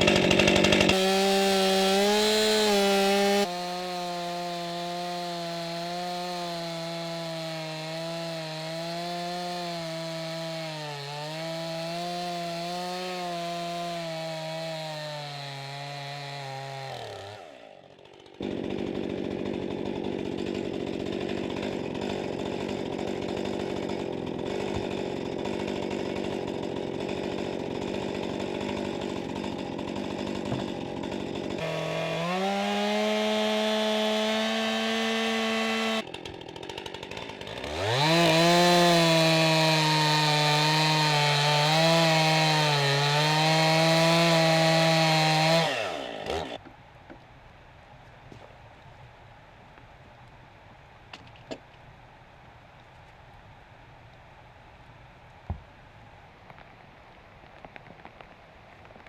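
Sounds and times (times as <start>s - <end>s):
chainsaw revving: 0.0s - 46.6s.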